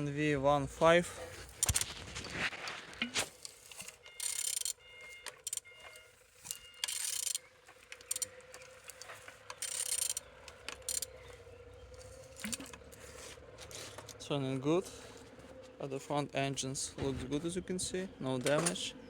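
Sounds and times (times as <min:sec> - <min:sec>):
rapid mechanical clicking: 0:01.3 - 0:13.0.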